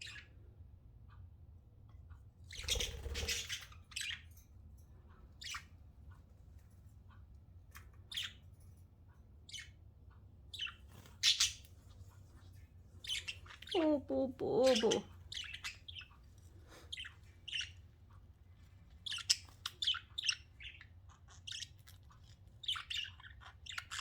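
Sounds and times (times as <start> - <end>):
budgerigars chirping and squawking: 0.0 - 0.4, 2.4 - 8.6, 9.4 - 9.8, 10.4 - 24.0.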